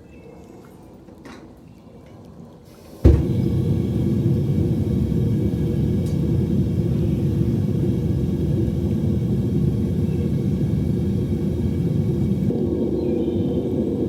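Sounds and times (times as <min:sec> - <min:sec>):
furnace low rumble: 0:02.7 - 0:14.0.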